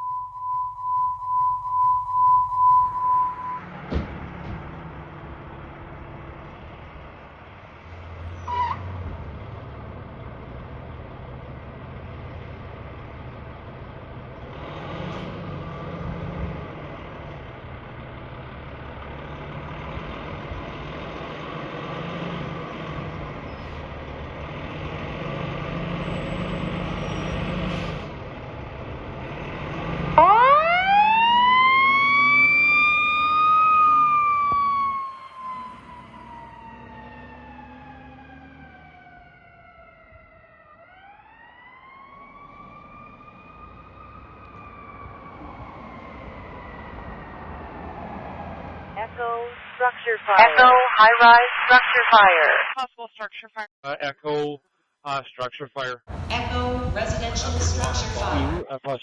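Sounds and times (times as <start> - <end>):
siren wailing: 0.0 - 3.8, 30.1 - 51.4
fire engine running: 2.5 - 52.7, 56.1 - 58.6.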